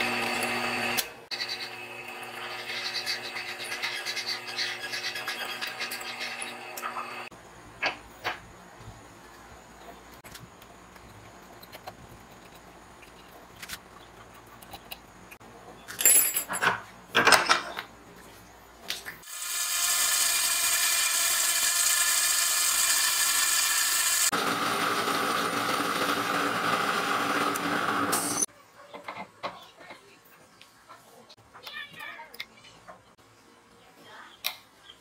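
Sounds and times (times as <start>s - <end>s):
metal lathe cutting: 0.0s - 7.3s, 19.3s - 28.4s.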